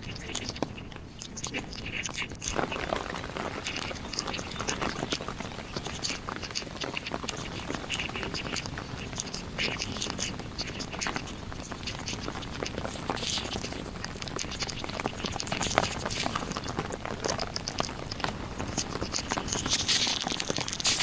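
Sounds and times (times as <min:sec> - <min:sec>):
heavy rain pattering: 0:02.1 - 0:21.0.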